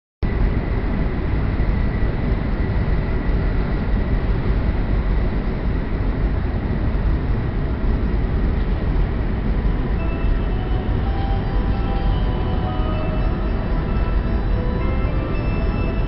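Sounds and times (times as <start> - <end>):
train cabin rumble: 0.4 - 16.0
faint high tone: 9.9 - 16.0.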